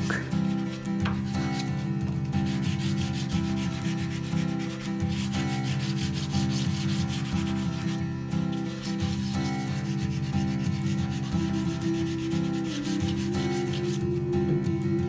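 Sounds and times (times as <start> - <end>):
chalk scribbling on paper: 0.0 - 14.1.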